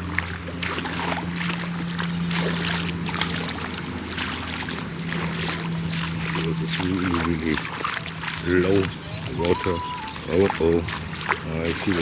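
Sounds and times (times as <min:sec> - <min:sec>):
low motor hum: 0:00.0 - 0:12.0.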